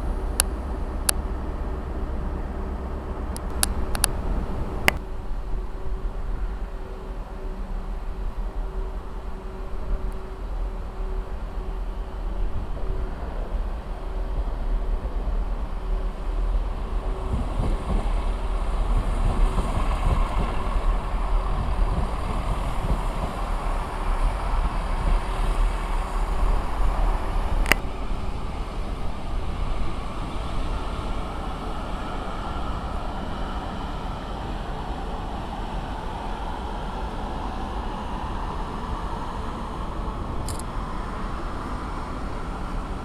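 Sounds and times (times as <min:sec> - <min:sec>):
train rumbling past: 0:00.0 - 0:43.0
sharp click: 0:40.4 - 0:40.7.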